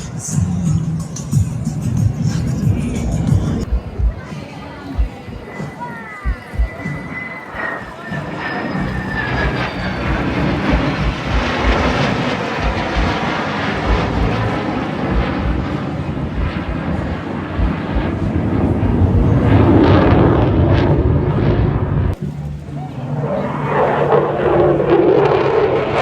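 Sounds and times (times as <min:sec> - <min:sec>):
aircraft engine high whine: 0:00.0 - 0:26.0
aircraft rushing sound: 0:00.0 - 0:26.0.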